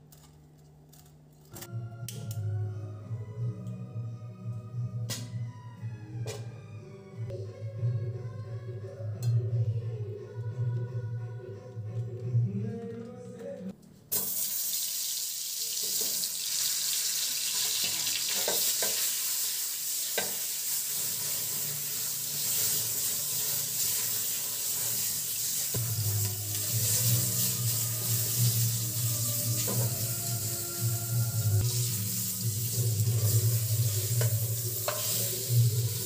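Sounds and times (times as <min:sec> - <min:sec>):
eggplants sizzling in hot oil: 0:14.1 - 0:36.0.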